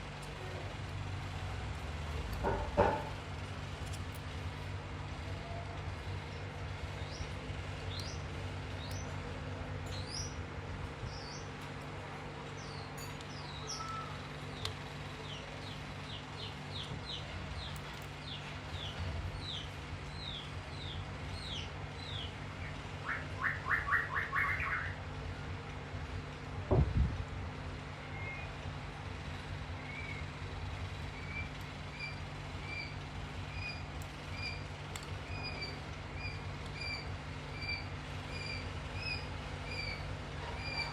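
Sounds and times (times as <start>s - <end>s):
steady low hum: 0.0s - 40.9s
small bird chirping and trilling: 9.9s - 10.4s, 11.1s - 11.5s, 12.6s - 22.4s, 35.3s - 40.9s.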